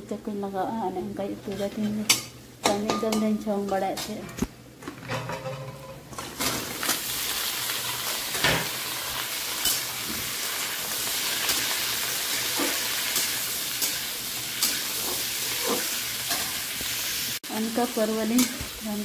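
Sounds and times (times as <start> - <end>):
metal spatula scraping a pan: 1.4 - 6.6, 11.1 - 16.6
vegetables sizzling in a pan: 5.6 - 19.0.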